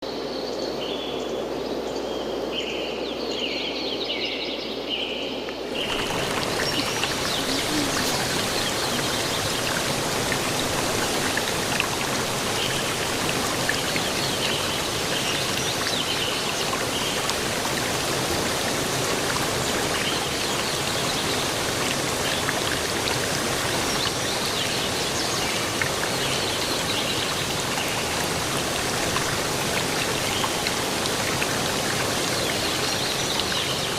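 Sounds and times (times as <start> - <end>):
dense rush of water: 5.6 - 33.9
birds chirping: 5.7 - 16.5
low outdoor rush: 5.7 - 24.0.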